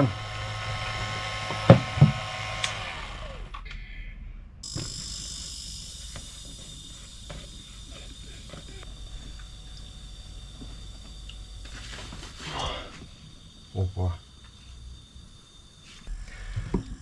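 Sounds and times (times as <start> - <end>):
high hiss of gas: 0.0 - 3.5, 4.6 - 17.0
sharp clicks: 0.0 - 3.8
motor hum: 0.0 - 17.0.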